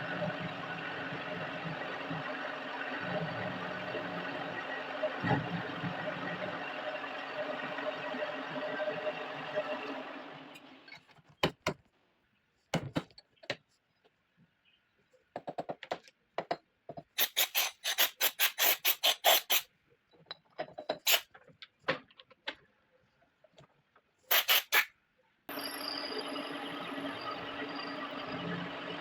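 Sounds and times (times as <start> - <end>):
machine running: 0.0 - 10.8, 25.5 - 29.0.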